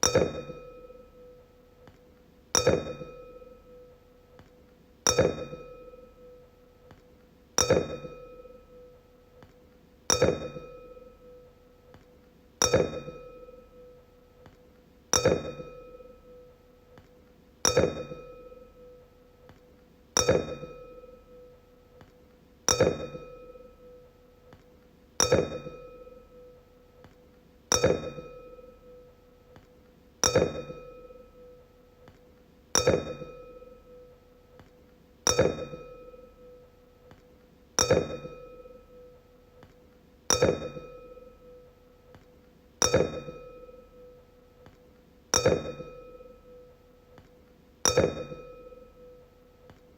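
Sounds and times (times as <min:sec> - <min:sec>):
wine glass ringing when struck: 0:02.6 - 0:03.8, 0:10.1 - 0:11.4, 0:12.6 - 0:13.9, 0:15.2 - 0:16.4, 0:20.2 - 0:21.5, 0:22.7 - 0:24.0, 0:25.2 - 0:26.5, 0:27.7 - 0:29.0, 0:30.2 - 0:31.6, 0:32.8 - 0:34.1, 0:35.3 - 0:36.6, 0:37.8 - 0:39.1, 0:40.3 - 0:41.6, 0:42.8 - 0:44.2, 0:45.4 - 0:46.7, 0:47.9 - 0:49.2.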